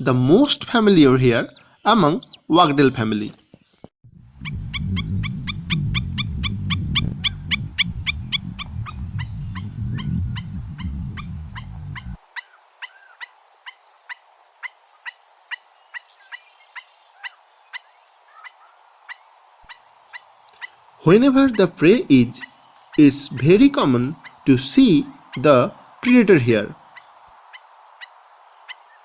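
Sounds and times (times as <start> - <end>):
low rumble: 4.0 - 12.2
bird calling downward notes: 4.2 - 13.1, 20.5 - 26.7.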